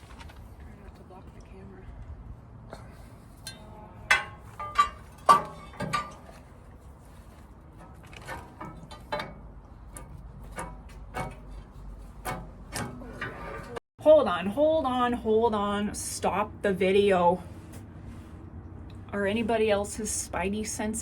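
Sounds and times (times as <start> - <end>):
metallic clanks: 3.4 - 6.6, 7.8 - 13.8.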